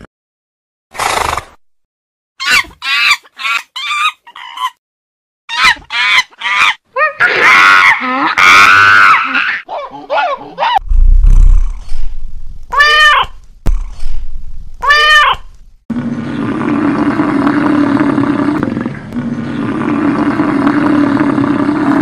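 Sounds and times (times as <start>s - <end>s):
monkey high calls: 2.4s - 4.8s, 14.8s - 15.5s.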